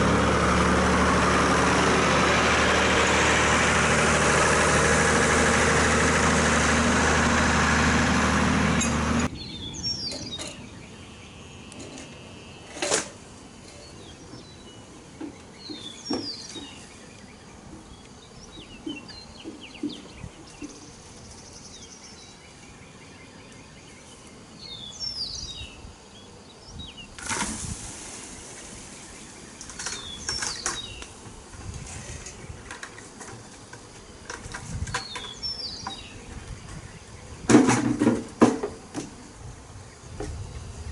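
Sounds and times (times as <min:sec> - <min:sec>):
vehicle engine idling: 0:00.0 - 0:09.3
birds chirping: 0:08.6 - 0:12.8, 0:13.6 - 0:27.2, 0:28.6 - 0:31.3, 0:32.1 - 0:37.5.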